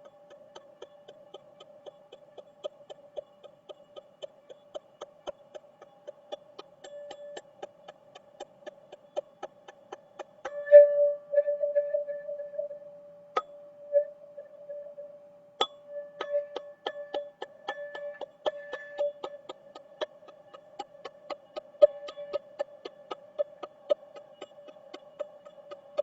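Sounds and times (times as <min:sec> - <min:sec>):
rapid even ticking: 0:00.0 - 0:10.6, 0:16.4 - 0:26.0
resonant tube ringing tone: 0:10.5 - 0:19.3.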